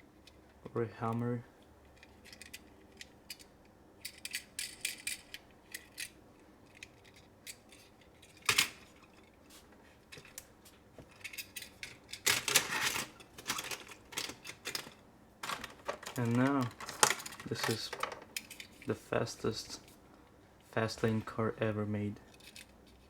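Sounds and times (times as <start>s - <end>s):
toy cars clicking and clattering: 1.9s - 9.3s, 11.1s - 18.9s, 22.3s - 23.0s.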